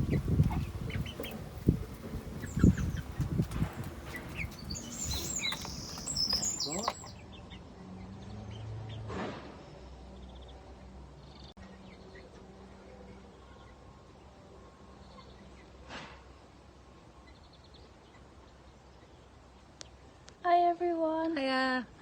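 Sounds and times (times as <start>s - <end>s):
chicks cheeping: 0.0s - 9.0s.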